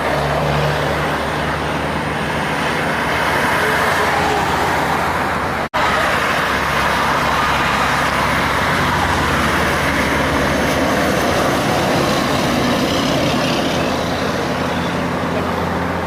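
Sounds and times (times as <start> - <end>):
truck diesel engine passing: 0.0 - 16.0
tyre and traffic noise: 0.0 - 16.0.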